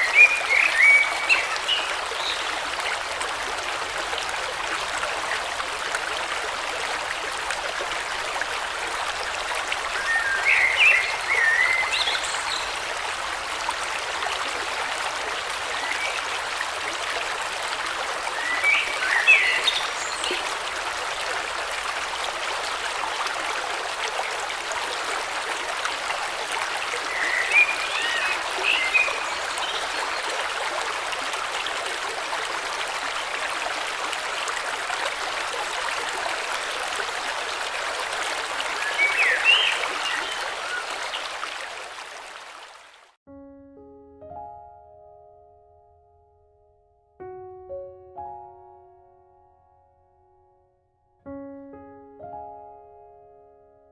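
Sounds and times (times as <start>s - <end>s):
river rushing: 0.0s - 43.0s.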